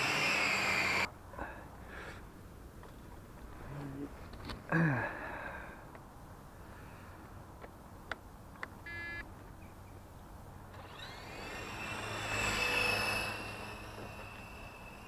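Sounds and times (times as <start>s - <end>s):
small electric motor whining: 0.0s - 1.1s, 10.7s - 15.0s.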